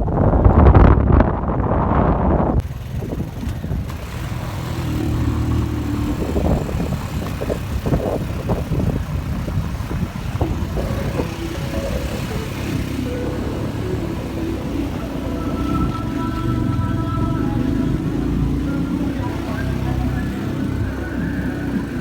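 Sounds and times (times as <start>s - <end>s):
motorcycle engine running: 0.0s - 22.0s
wind buffeting microphone: 0.0s - 22.0s.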